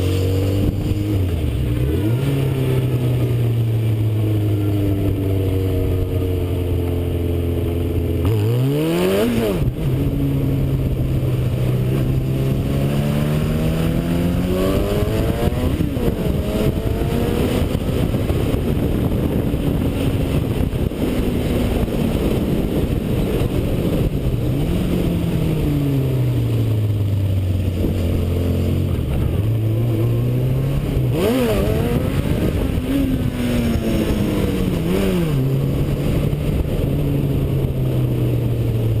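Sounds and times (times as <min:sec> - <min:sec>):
motorcycle engine revving: 0:00.0 - 0:39.0
wind rushing: 0:08.8 - 0:26.8, 0:27.7 - 0:39.0.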